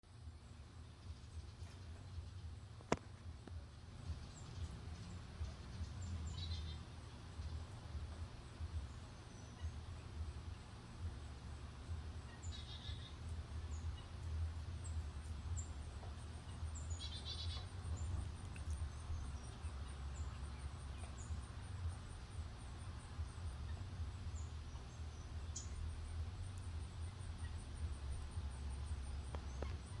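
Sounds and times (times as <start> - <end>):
low outdoor rumble: 0.0 - 30.0
small birds chirping: 0.1 - 30.0
bird trill: 4.1 - 7.8, 8.8 - 21.8.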